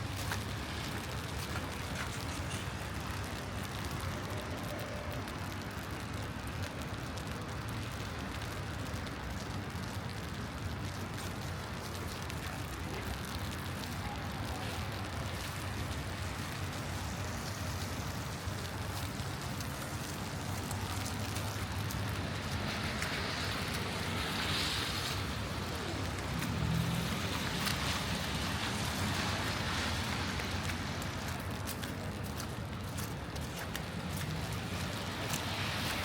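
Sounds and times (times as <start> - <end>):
traffic rumble: 0.0 - 36.0
rushing hiss of wet road: 10.4 - 36.0.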